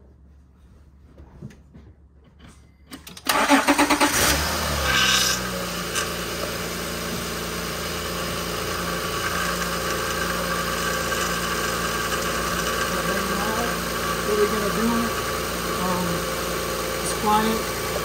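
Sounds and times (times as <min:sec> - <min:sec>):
engine starter cranking: 0:02.9 - 0:05.4
car engine idling: 0:03.3 - 0:18.0.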